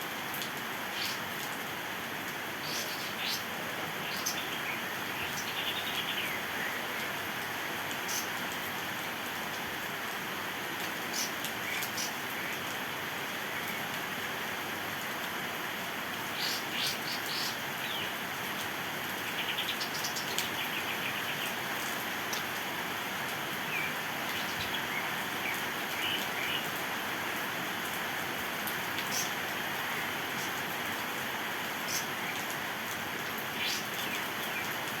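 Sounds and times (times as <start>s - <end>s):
rain hiss: 0.0s - 35.0s
songbird chirping and trilling: 2.6s - 6.8s, 16.4s - 18.1s.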